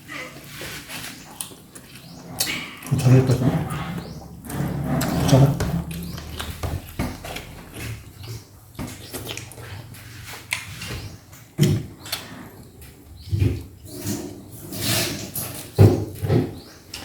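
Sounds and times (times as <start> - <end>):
chewing and mouth smacking: 0.8 - 3.3.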